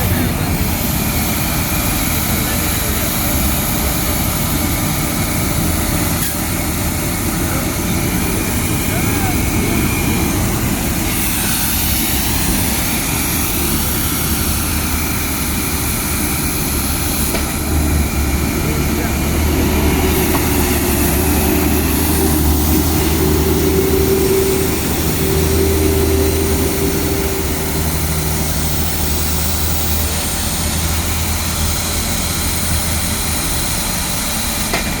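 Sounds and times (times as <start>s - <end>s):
vacuum truck machine drone: 0.0s - 35.0s.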